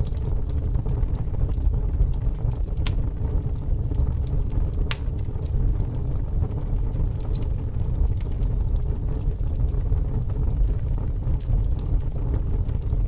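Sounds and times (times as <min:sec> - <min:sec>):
fire burning with low rumble: 0:00.0 - 0:13.0
fire crackles and pops: 0:00.0 - 0:13.0.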